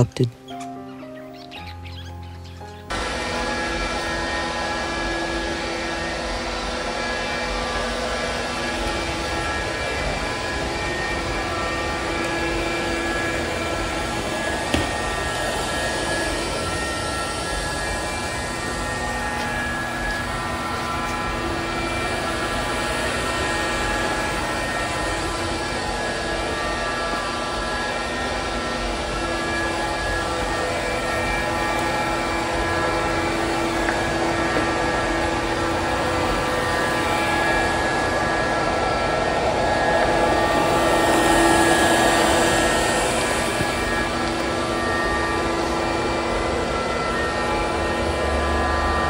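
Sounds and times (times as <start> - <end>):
robot vacuum motor hum and whine: 1.4 - 49.0.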